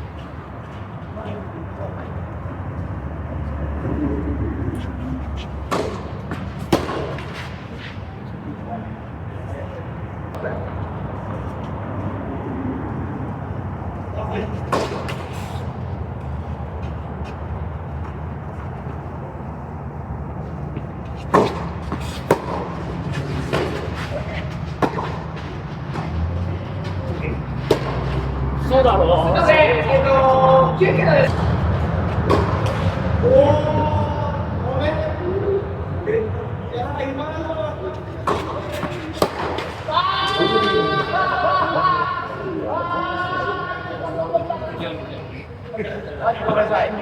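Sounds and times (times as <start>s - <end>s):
racket hitting tennis ball: 5.4s - 7.8s, 14.6s - 15.8s, 20.7s - 26.2s, 27.6s - 28.4s, 31.3s - 33.1s, 38.2s - 40.4s.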